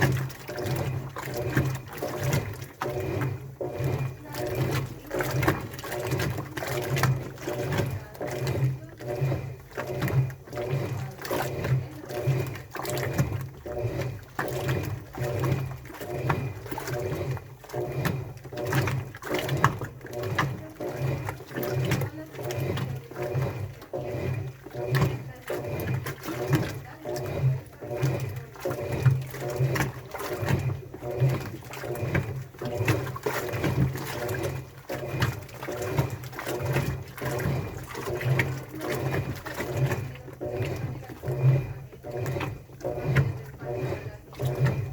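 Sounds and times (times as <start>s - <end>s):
washing machine drum turning: 0.0s - 44.9s
wet laundry swishing: 0.0s - 44.9s.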